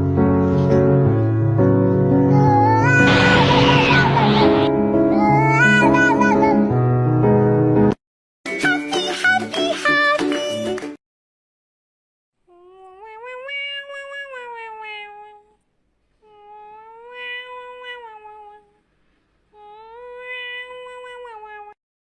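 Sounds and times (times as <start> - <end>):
cat meowing: 12.5 - 15.6, 16.2 - 18.7, 19.6 - 21.8.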